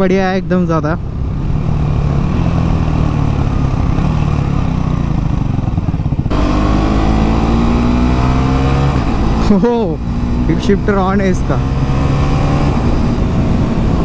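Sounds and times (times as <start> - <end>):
motorcycle engine accelerating: 0.8 - 14.0.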